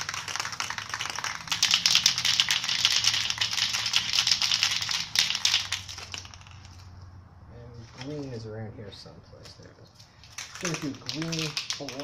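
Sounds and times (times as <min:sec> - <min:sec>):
spray paint cans rattling: 0:00.0 - 0:07.0, 0:09.4 - 0:12.0.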